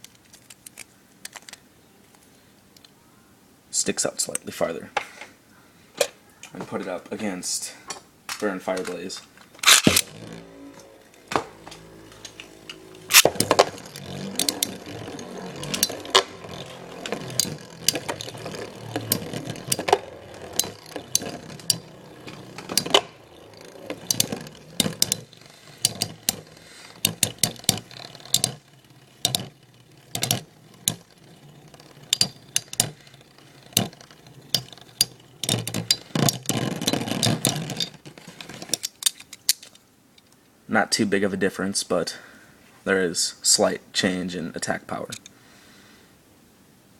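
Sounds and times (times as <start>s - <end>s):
spinning tops clacking together: 8.7s - 39.8s
spinning tops whirring: 8.9s - 38.9s.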